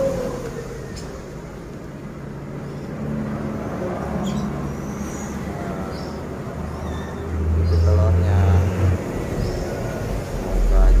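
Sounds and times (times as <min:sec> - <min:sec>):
songbird chirps: 0:02.5 - 0:11.0
low steady rumble: 0:07.2 - 0:11.0.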